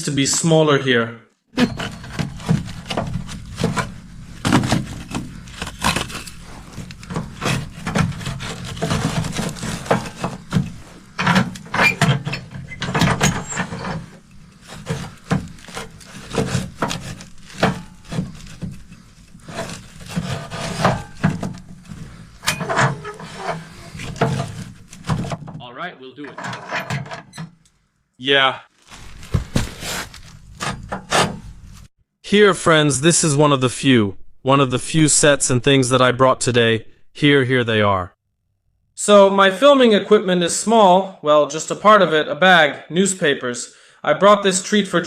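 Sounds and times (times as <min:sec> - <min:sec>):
wood scraping: 0:01.5 - 0:25.6, 0:28.8 - 0:31.9.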